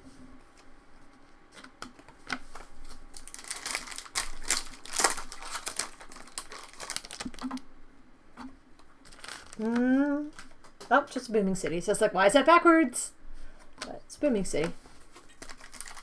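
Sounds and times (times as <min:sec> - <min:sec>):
foil wrapper crinkling and tearing: 0:01.9 - 0:07.7, 0:09.0 - 0:10.7, 0:14.6 - 0:16.0
cards being handled: 0:14.6 - 0:16.0.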